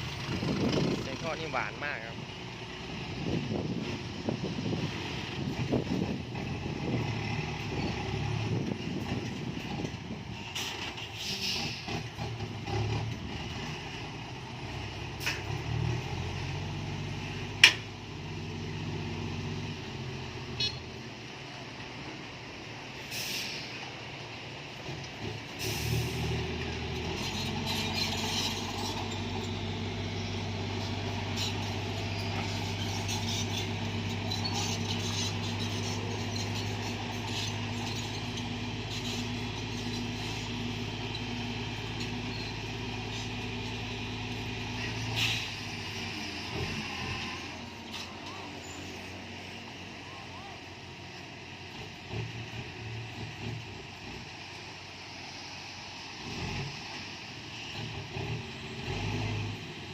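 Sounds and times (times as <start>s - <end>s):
diesel truck engine running: 0.0s - 59.9s
short hisses of air: 10.6s - 11.9s, 23.0s - 23.8s.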